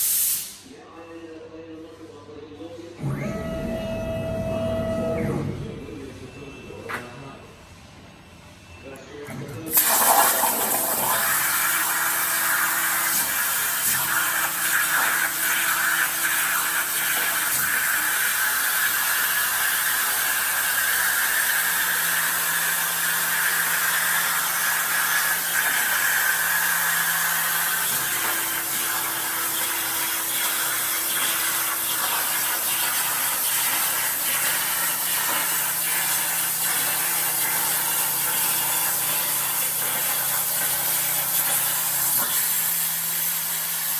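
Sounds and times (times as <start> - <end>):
plasma torch hissing: 0.0 - 0.7, 9.7 - 21.3, 27.2 - 43.9
low machine hum: 3.0 - 9.6.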